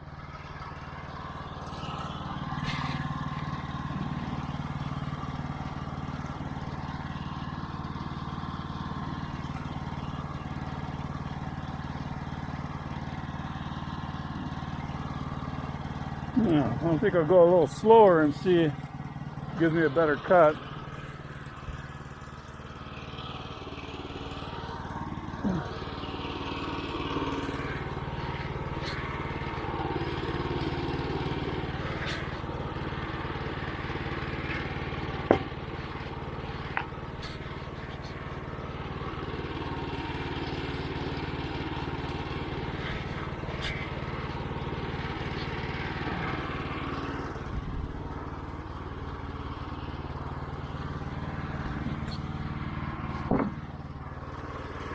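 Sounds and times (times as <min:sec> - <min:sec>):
sawmill engine running: 0:00.0 - 0:54.9
band saw cutting log: 0:24.4 - 0:32.6, 0:33.3 - 0:47.6.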